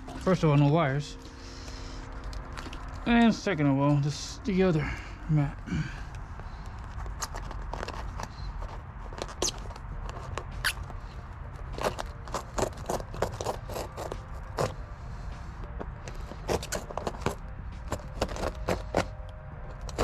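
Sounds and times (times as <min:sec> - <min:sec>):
knife cutting a mat: 0:11.6 - 0:14.8, 0:16.1 - 0:20.0.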